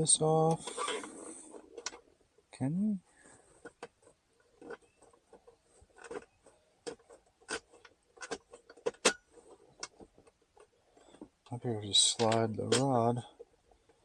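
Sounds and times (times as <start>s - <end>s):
plastic and metal clicks and knocks: 3.6s - 14.0s.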